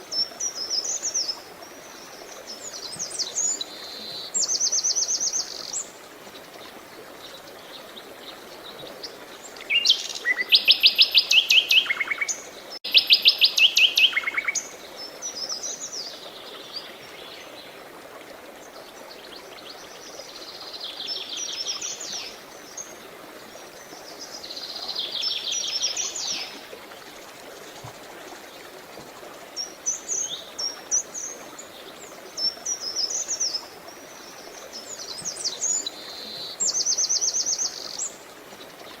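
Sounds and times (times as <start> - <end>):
faint flowing water: 0.0 - 39.0
songbirds trilling: 29.6 - 39.0.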